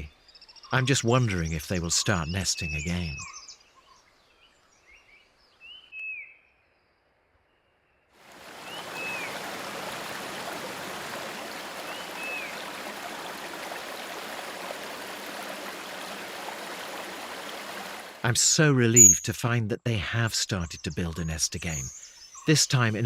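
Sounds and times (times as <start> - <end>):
running water: 8.2 - 18.4
high bird chirps: 19.0 - 19.3.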